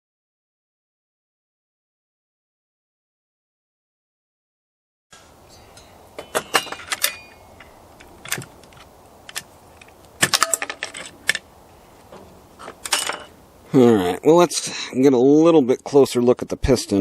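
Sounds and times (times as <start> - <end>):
small metal parts clicking: 5.8 - 11.4, 12.6 - 13.3.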